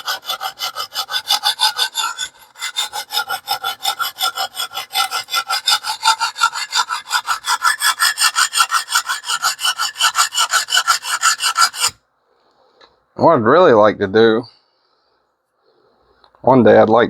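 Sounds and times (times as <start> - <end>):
sharpening stone scraping steel: 0.0 - 12.0.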